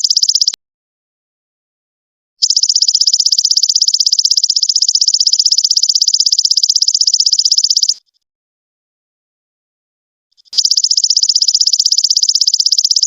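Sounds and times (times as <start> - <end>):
insect buzzing trill: 10.4 - 13.0.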